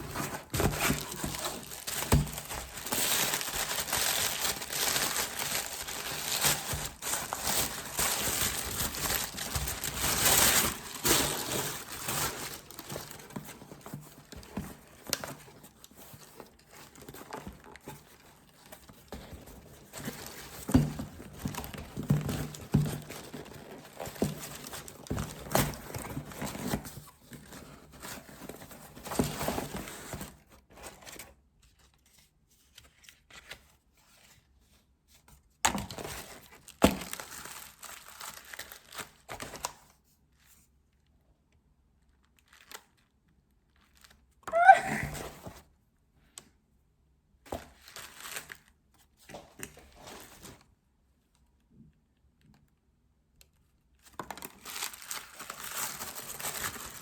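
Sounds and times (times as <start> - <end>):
wrapping crinkled and torn: 0.0 - 13.5, 36.4 - 39.8, 42.0 - 43.1, 43.7 - 45.0, 47.8 - 48.8, 54.2 - 57.0.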